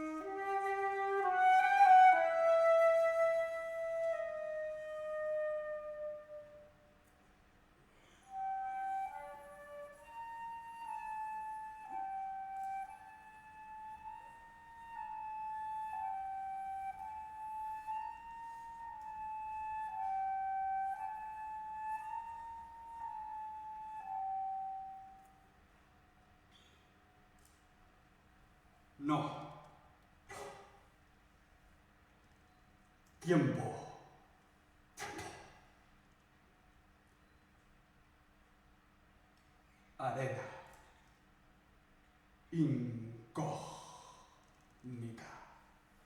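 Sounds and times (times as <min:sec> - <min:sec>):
flute playing: 0:00.0 - 0:06.9, 0:08.3 - 0:25.4.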